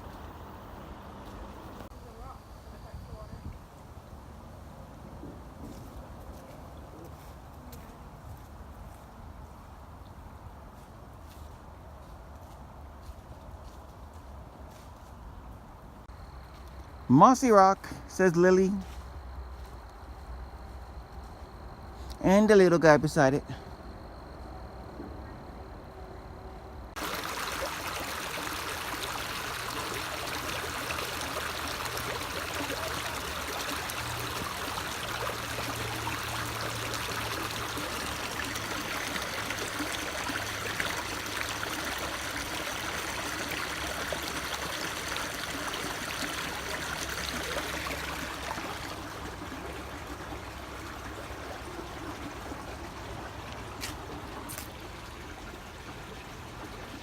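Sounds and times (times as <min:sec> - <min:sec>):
creek water running over rocks: 0:00.0 - 0:02.2, 0:26.9 - 0:57.0.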